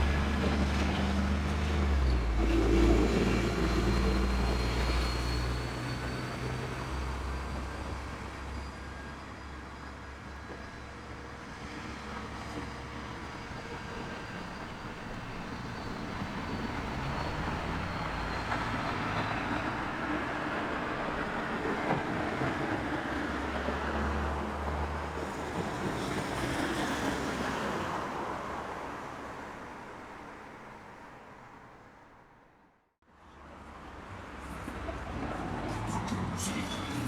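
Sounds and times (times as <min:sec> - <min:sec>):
vehicle passing: 0:13.4 - 0:21.2.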